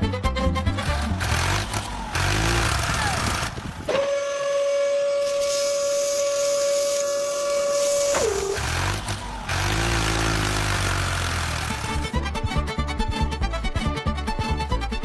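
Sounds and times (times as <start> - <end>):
long steady whistle tone: 3.9 - 8.9.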